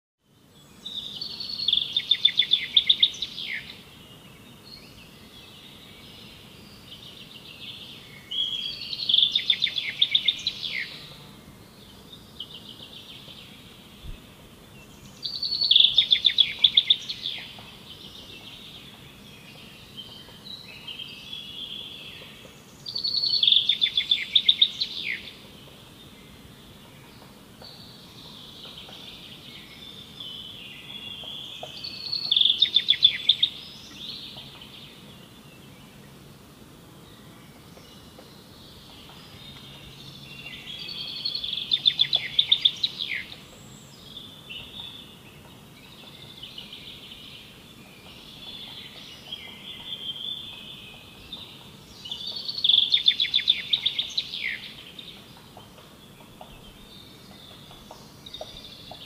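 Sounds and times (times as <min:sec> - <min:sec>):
faint background hiss: 0:00.2 - 0:59.0
songbird trilling: 0:01.0 - 0:03.8, 0:08.4 - 0:11.2, 0:15.2 - 0:17.6, 0:22.9 - 0:25.4, 0:30.4 - 0:34.5, 0:38.9 - 0:45.1, 0:48.1 - 0:59.0.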